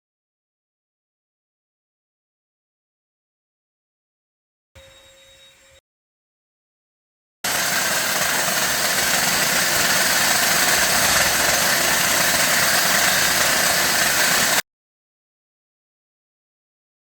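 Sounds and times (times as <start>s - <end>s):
hissing machine whir: 7.5s - 14.6s.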